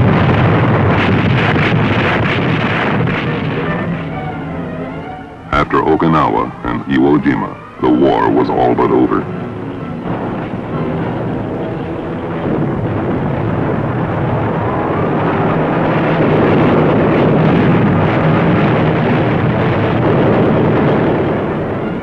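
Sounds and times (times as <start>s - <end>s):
engine roar: 0.0s - 22.0s
faint rising whine: 3.2s - 16.1s.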